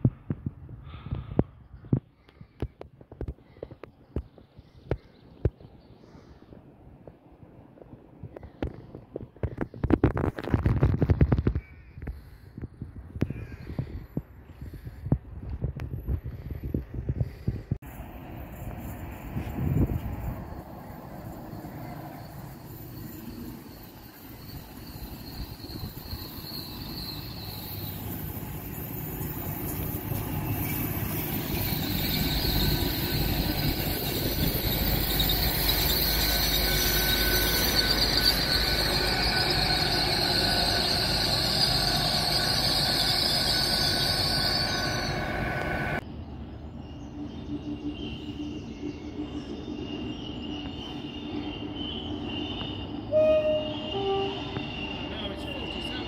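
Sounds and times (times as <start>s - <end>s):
train rumble: 0.0s - 56.0s
high wheel squeal: 18.8s - 46.0s, 47.0s - 56.0s.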